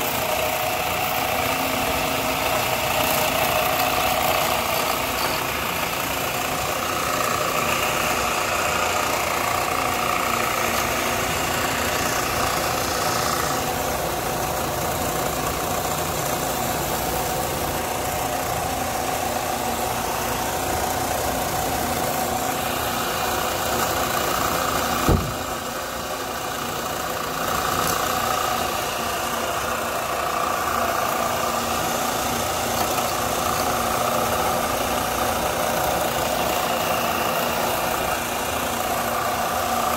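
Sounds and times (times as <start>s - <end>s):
motor-driven machine running: 0.0s - 39.9s
sharp knock: 25.0s - 25.4s.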